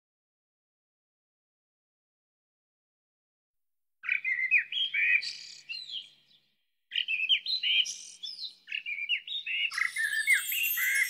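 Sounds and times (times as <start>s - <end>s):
songbird chirping: 4.0s - 11.0s.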